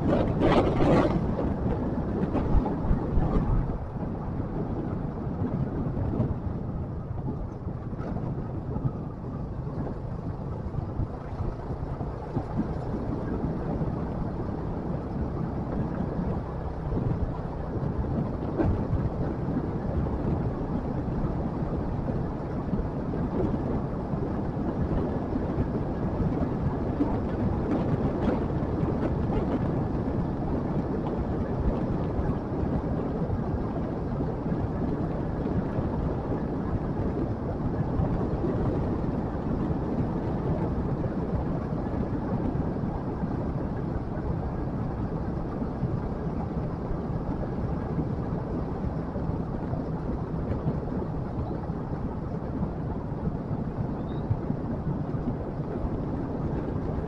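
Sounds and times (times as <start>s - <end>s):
road noise: 0.0s - 57.0s
wind: 0.0s - 57.0s.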